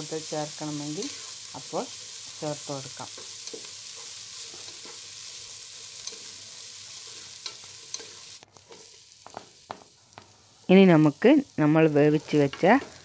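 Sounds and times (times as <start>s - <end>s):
food sizzling in hot oil: 0.0s - 13.0s
spatula tapping a pan: 9.2s - 10.3s.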